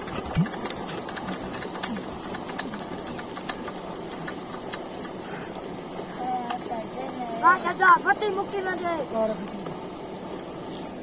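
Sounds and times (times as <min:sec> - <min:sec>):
light ticks and clicks: 0:00.0 - 0:08.0.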